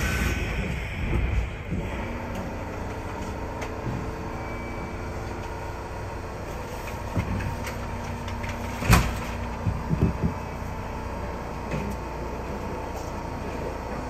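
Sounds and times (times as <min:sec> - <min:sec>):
electrical hum in train car: 0:00.0 - 0:14.0.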